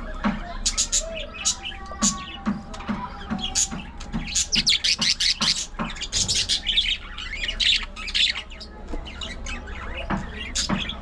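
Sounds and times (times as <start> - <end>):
budgerigars chattering: 3.5 - 11.0.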